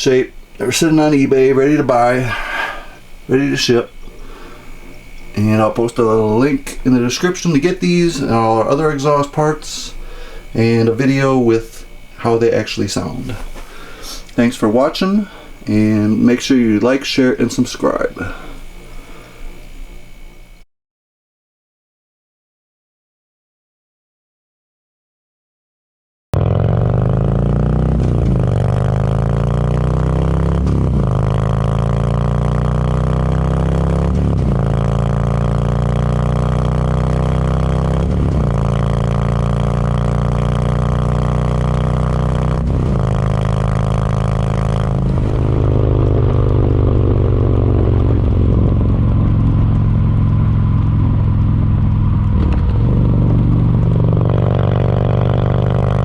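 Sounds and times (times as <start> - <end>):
motorcycle accelerating through gears: 26.4 - 56.0.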